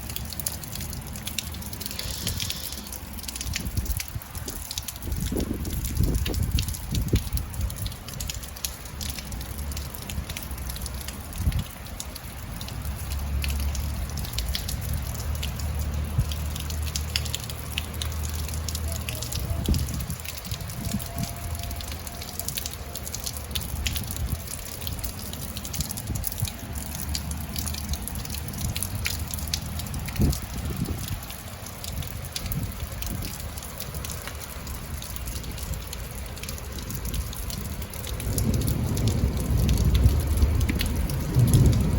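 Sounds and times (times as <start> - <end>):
rain dripping on hard surfaces: 0.0 - 41.9.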